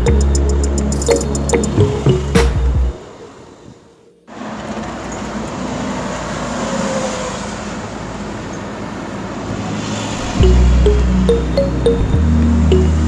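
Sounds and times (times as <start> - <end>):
vehicle engine hum: 4.3 - 13.0.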